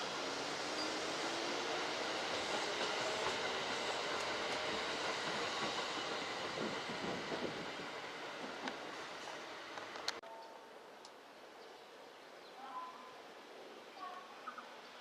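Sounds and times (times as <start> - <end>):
electric train rumbling on rails: 0.0 - 10.2.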